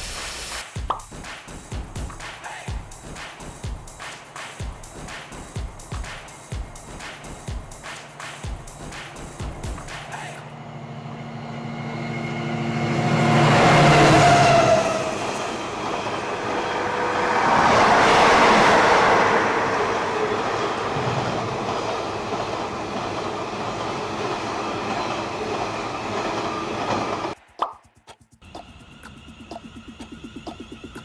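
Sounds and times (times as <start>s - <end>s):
train passing by: 1.8s - 27.4s, 28.4s - 31.0s.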